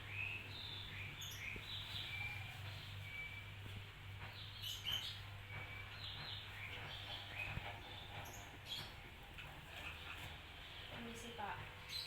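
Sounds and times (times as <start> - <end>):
birds chirping faintly: 0.0 - 12.0.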